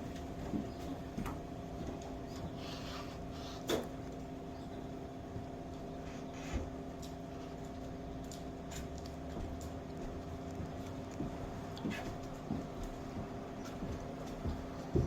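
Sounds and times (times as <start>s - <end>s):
steady hum with held tones: 0.0s - 15.0s.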